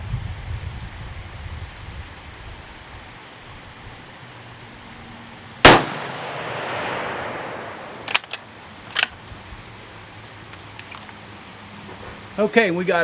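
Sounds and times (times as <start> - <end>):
light wind noise: 0.0 - 13.0
rifle shot: 5.6 - 8.3.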